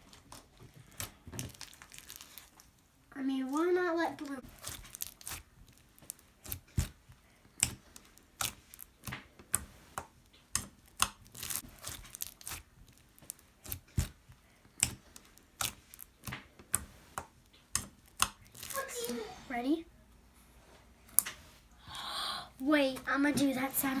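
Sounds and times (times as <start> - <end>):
slime popping and crackling: 0.0 - 2.9, 3.8 - 19.1
slime squished by hand: 4.2 - 19.2.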